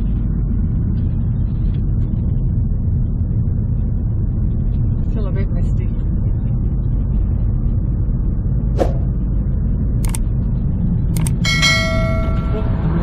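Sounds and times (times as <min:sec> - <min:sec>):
car engine and tyre rumble: 0:00.0 - 0:13.0
sharp clicks: 0:10.0 - 0:10.2, 0:11.2 - 0:11.4
short ringing tone: 0:11.2 - 0:13.0.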